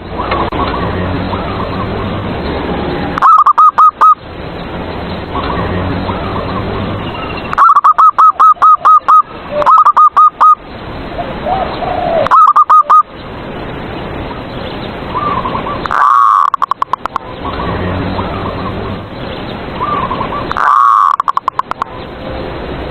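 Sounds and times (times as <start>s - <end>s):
dove cooing: 3.2s - 4.2s, 7.6s - 10.6s, 11.4s - 13.0s, 15.2s - 17.2s, 19.8s - 21.8s.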